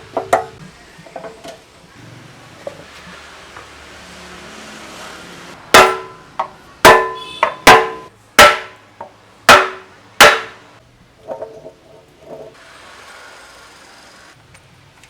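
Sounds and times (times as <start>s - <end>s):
hammer striking metal: 5.7s - 8.8s, 9.5s - 10.7s.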